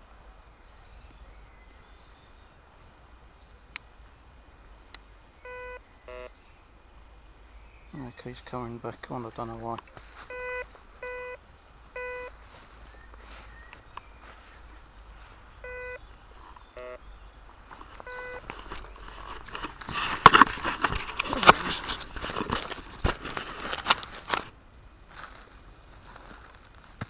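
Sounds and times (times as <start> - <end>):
metal detector beeps: 5.4 - 6.3, 10.3 - 11.4, 12.0 - 12.3, 15.6 - 16.0, 16.7 - 17.0, 18.0 - 18.5
warbling detector tone: 5.5 - 6.3, 16.8 - 17.0, 18.0 - 18.4
crackling and scraping: 8.4 - 10.9, 16.3 - 27.0.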